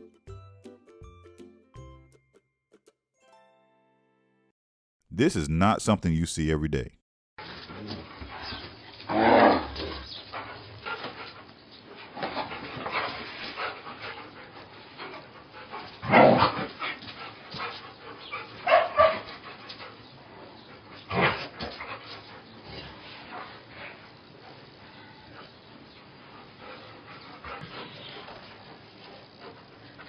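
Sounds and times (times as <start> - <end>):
dog barking and yipping: 18.2 - 19.3.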